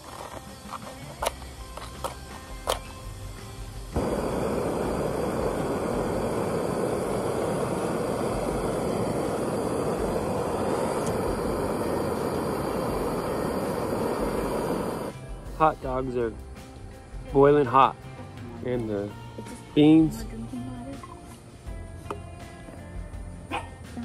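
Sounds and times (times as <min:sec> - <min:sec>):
camping stove burning: 0:00.0 - 0:16.4.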